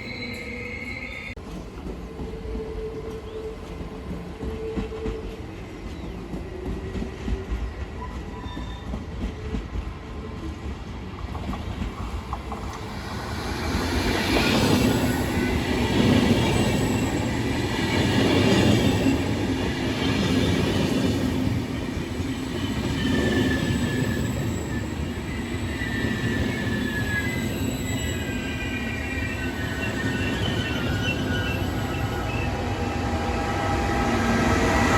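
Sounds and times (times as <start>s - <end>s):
high wheel squeal: 0.0s - 1.4s, 23.0s - 34.9s
train wheels rumbling on rails: 1.3s - 34.9s.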